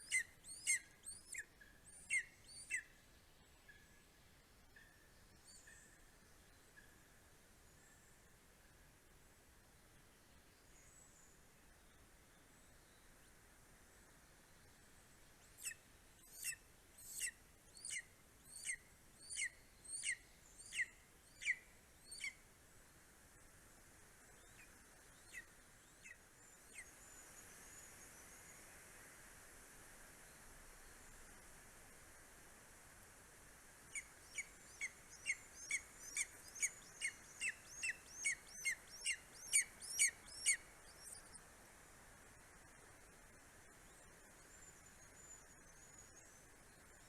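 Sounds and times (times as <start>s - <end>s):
eagle high-pitched calls: 0.0s - 2.9s, 15.6s - 22.4s, 33.9s - 41.3s
eagle calling: 33.9s - 40.6s.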